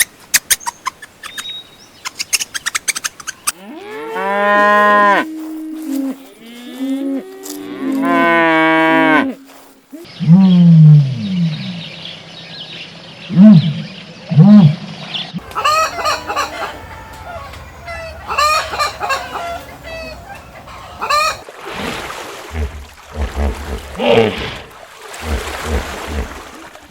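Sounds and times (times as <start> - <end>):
chickens clucking: 0.0 - 3.7, 15.4 - 21.4
cattle mooing: 3.6 - 9.5.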